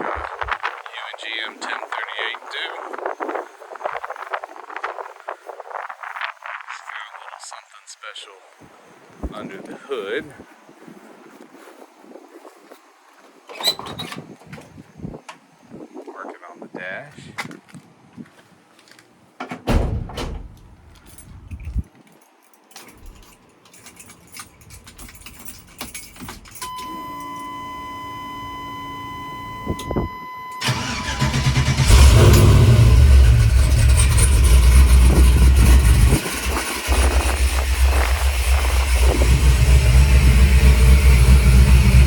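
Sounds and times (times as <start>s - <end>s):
steady high tone: 26.6s - 42.0s
engine cranking and starting: 28.9s - 42.0s
engine idling loud and deep: 30.6s - 42.0s.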